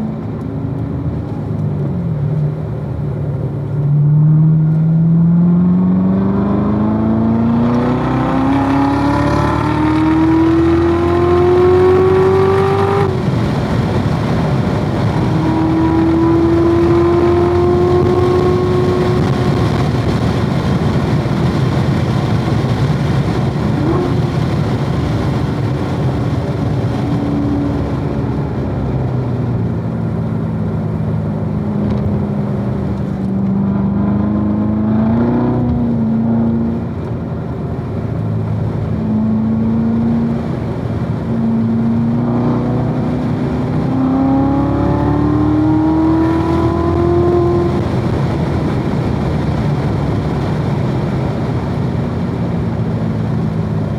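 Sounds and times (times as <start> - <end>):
car engine at speed: 0.0 - 53.9
engine throttle blips: 0.0 - 53.9.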